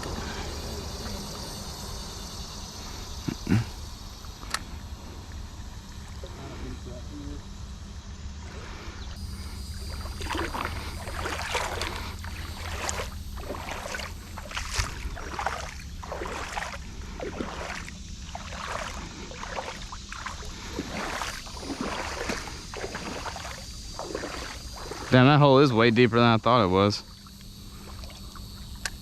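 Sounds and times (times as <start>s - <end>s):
legs wading through water: 0.0s - 6.6s, 9.2s - 26.0s, 26.7s - 29.0s
low rumble: 0.0s - 19.4s.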